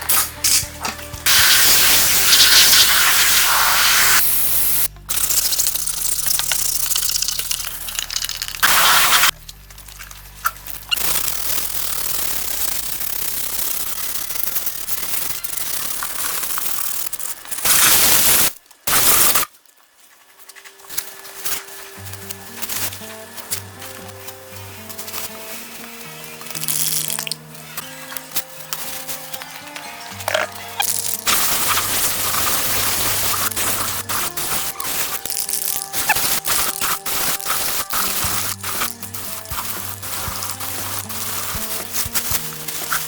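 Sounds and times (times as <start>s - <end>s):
compressed air hissing: 0.0s - 7.0s, 8.6s - 9.4s, 17.6s - 19.4s, 30.4s - 43.0s.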